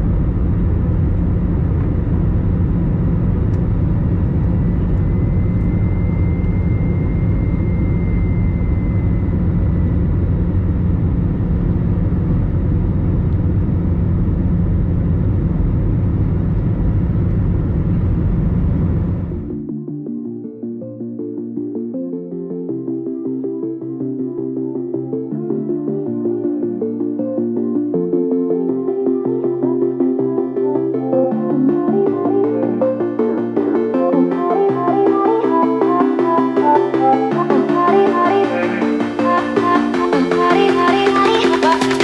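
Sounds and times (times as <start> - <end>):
faint high whine: 0.0 - 19.5
jet engine rumble in cabin: 0.0 - 19.5.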